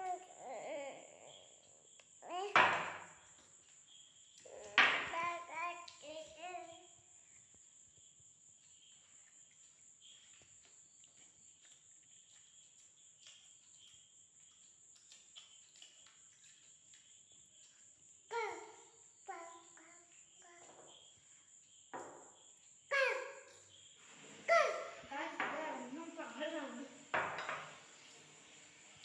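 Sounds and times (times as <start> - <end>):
child vocalising: 0.0 - 2.7, 4.4 - 6.9, 18.3 - 20.7, 22.9 - 23.4, 24.4 - 25.0.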